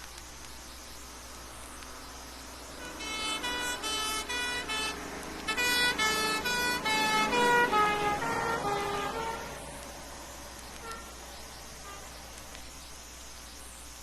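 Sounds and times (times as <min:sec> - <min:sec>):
emergency vehicle two-tone horn: 0:02.8 - 0:09.6, 0:10.8 - 0:11.2.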